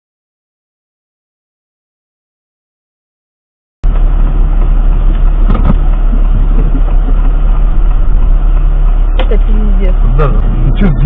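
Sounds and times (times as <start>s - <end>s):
vehicle engine and road noise: 3.8s - 11.0s.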